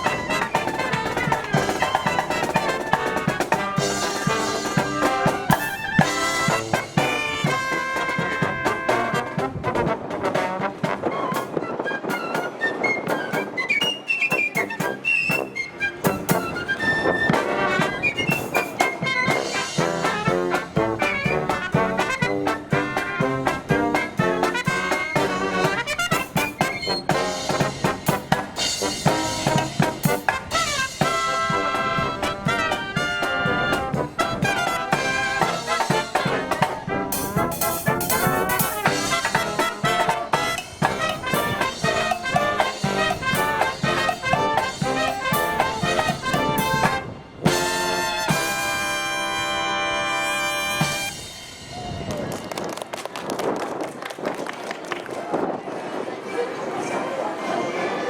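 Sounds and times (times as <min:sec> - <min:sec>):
marching brass band playing: 0:00.0 - 0:52.4
wind buffeting microphone: 0:09.2 - 0:19.3, 0:51.5 - 0:57.9.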